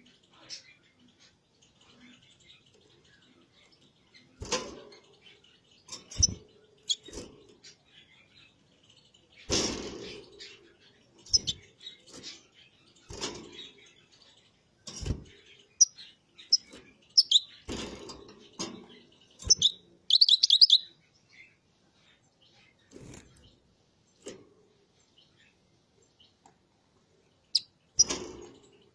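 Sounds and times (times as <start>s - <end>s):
finches chirping: 0.0s - 23.6s, 27.3s - 28.9s
dull knocks or rustles: 14.9s - 15.4s.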